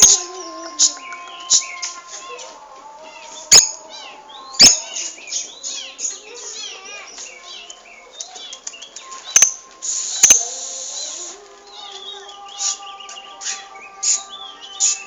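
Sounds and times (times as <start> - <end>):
lovebird chirping and warbling: 3.2 - 15.0.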